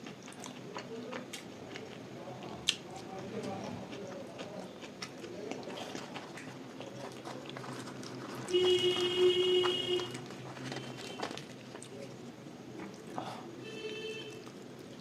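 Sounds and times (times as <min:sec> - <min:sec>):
chewing and wet mouth clicks: 0:00.0 - 0:08.5, 0:11.4 - 0:13.2.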